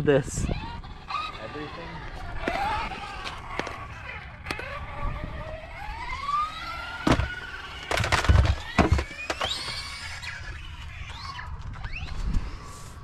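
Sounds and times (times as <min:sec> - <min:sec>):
electric motor whining: 0:00.0 - 0:13.0
toy truck bouncing on ground: 0:00.4 - 0:12.2.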